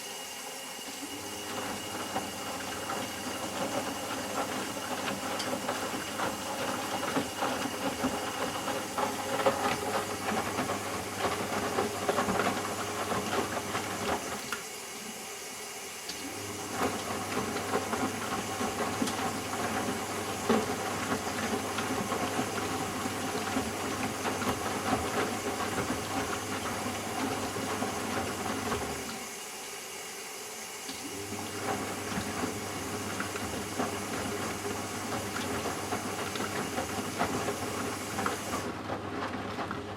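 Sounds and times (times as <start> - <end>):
washing machine motor humming: 0.0 - 39.9.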